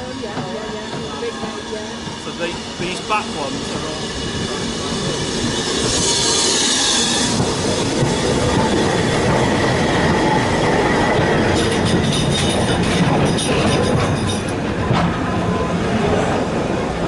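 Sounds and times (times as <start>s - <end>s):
railway carriages rolling: 0.0s - 17.0s
wheel squeal: 4.0s - 14.4s.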